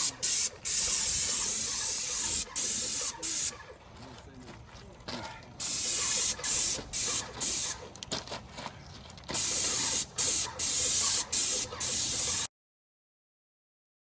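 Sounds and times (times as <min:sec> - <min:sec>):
spray paint hissing bursts: 0:00.0 - 0:03.6, 0:05.6 - 0:07.8, 0:09.3 - 0:12.5.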